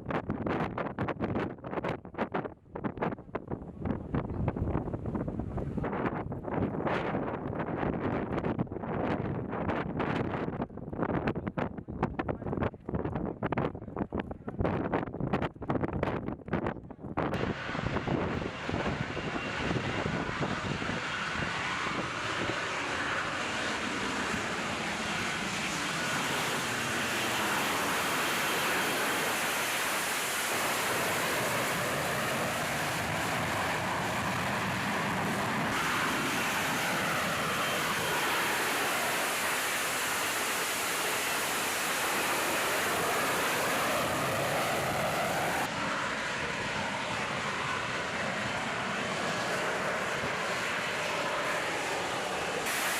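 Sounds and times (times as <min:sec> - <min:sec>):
jet engine running: 0:17.3 - 0:52.9.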